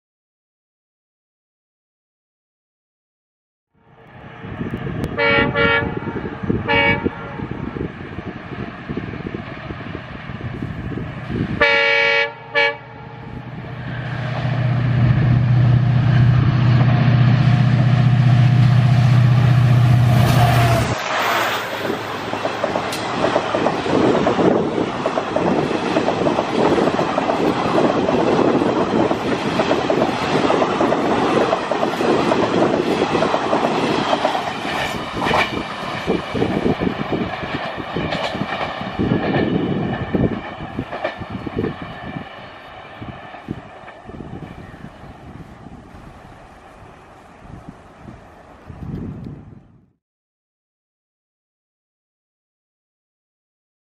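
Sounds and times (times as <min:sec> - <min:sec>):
locomotive engine drone: 0:03.8 - 0:49.6
locomotive horn blast: 0:05.0 - 0:07.6, 0:11.6 - 0:13.4, 0:18.3 - 0:22.0.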